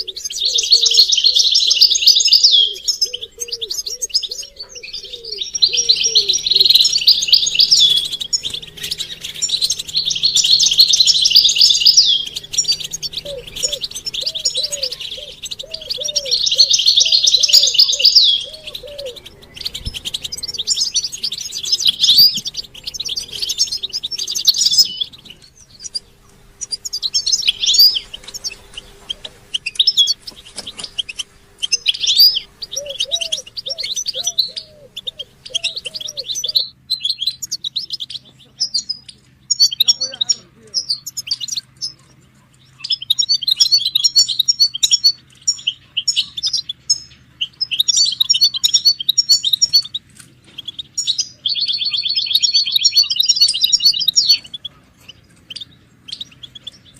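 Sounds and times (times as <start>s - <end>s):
low repeated bird note: 0.0s - 37.2s
goldfinches singing and twittering: 0.0s - 56.9s.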